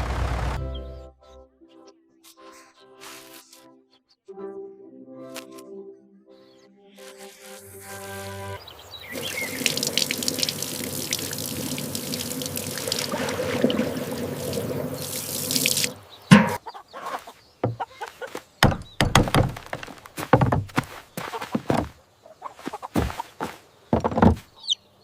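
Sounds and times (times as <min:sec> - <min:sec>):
water pouring: 0:09.1 - 0:16.6
short knocks and thuds: 0:16.3 - 0:16.6, 0:17.6 - 0:17.8, 0:18.6 - 0:22.0, 0:23.0 - 0:24.5.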